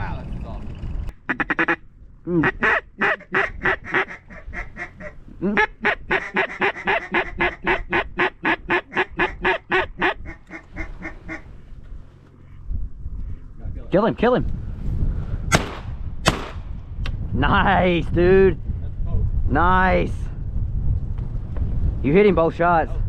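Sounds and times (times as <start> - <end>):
duck call quacking: 1.3 - 1.8, 2.4 - 11.4.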